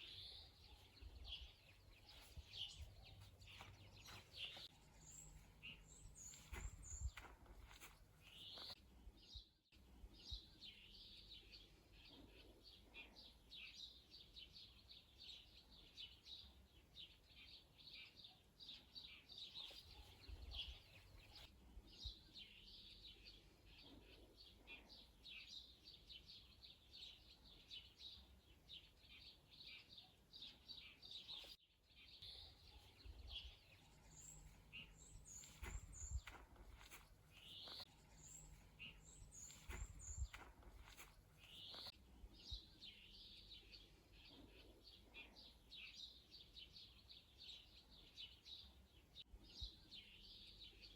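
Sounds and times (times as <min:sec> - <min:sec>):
faint songbirds chirping: 0:00.0 - 0:50.9.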